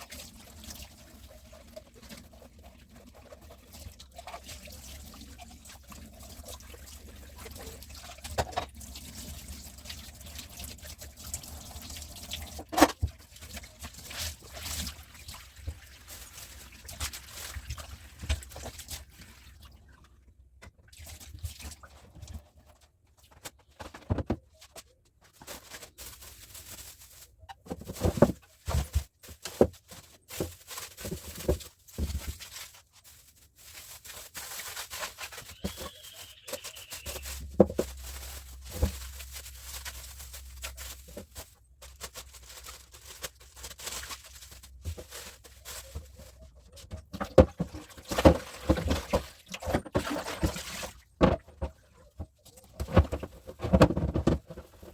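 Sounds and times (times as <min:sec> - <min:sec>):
household items knocking and clattering: 0:23.3 - 0:26.2, 0:27.4 - 0:32.6, 0:35.3 - 0:39.6, 0:44.6 - 0:54.9.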